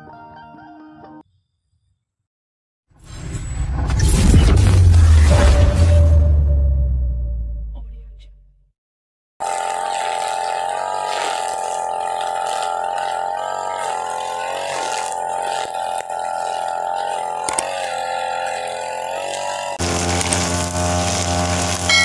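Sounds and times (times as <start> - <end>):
brush cutter engine running: 9.4 - 22.0
nylon line cutting grass: 9.4 - 22.0.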